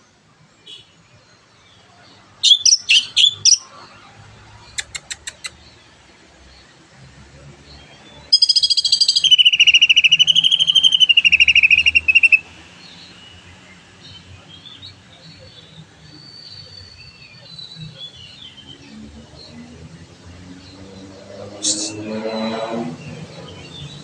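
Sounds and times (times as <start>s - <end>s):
soft bird chirps: 7.7s - 19.7s
bird singing pulsing phrase: 8.3s - 13.4s.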